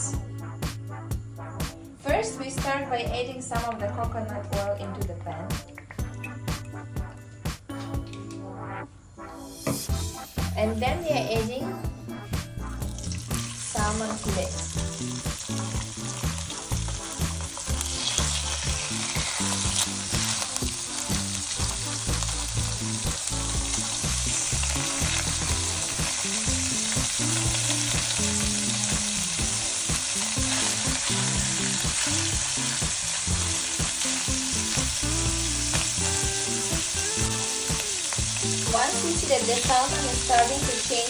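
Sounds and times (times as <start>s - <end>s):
fish sizzling in a frying pan: 12.8s - 41.0s.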